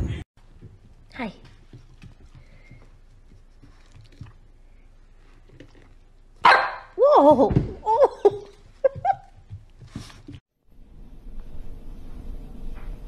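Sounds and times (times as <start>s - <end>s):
puppy barking: 6.4s - 7.0s.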